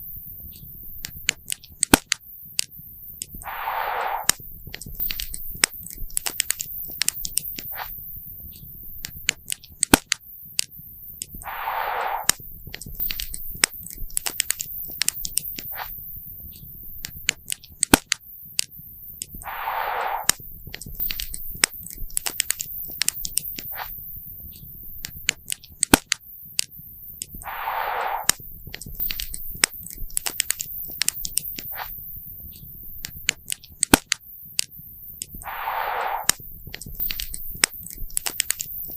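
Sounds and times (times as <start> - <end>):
fire hiss rush: 3.4 - 4.4, 11.4 - 12.4, 19.4 - 20.4, 27.4 - 28.4, 35.4 - 36.4.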